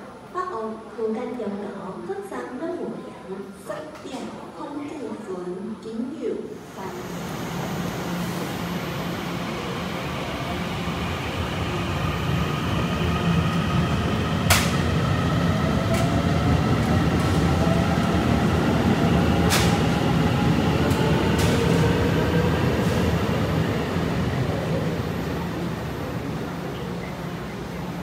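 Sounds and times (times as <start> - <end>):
train rumble: 6.8 - 28.0
sharp train clacks: 14.4 - 15.0, 19.1 - 20.2, 20.8 - 23.2.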